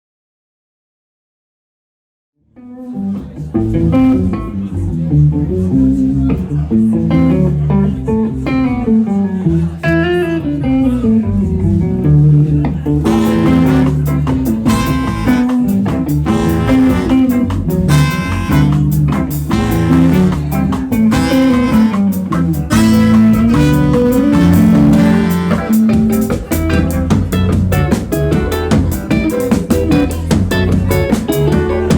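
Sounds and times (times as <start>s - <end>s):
live band playing: 3.0s - 4.7s, 12.8s - 31.9s.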